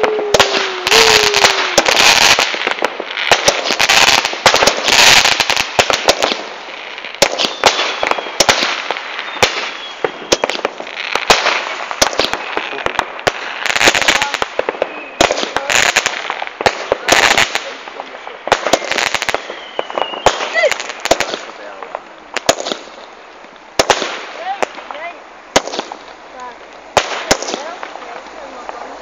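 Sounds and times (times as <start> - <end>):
fireworks crackling and banging: 0.0 - 29.0
fireworks hiss: 0.0 - 29.0
falling whistle: 19.4 - 20.4.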